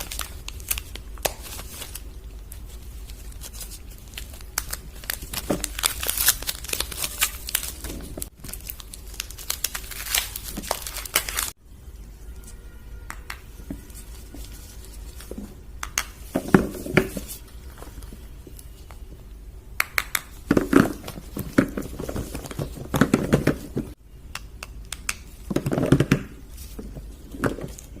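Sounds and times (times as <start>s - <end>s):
wrappers crinkling and tearing: 0.0s - 11.6s
handling rustles: 20.5s - 24.0s.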